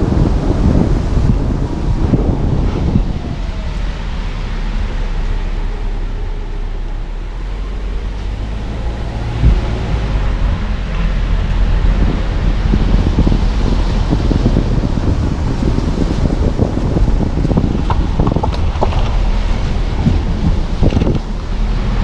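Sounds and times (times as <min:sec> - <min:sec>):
road and engine rumble: 0:00.0 - 0:22.0
wind noise: 0:00.0 - 0:22.0.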